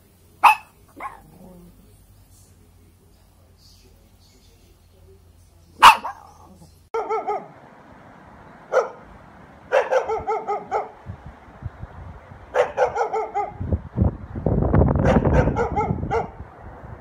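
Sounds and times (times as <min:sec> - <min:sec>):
dog barking: 0:00.4 - 0:01.4, 0:05.8 - 0:07.6, 0:08.7 - 0:09.1, 0:09.7 - 0:11.0, 0:12.5 - 0:13.7, 0:15.0 - 0:16.4.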